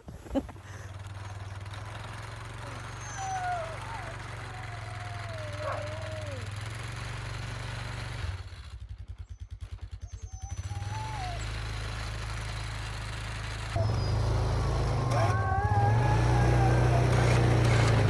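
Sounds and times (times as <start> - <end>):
engine idling: 0.5 - 18.0
dogs whining: 2.6 - 6.5, 10.0 - 11.6, 13.8 - 18.0.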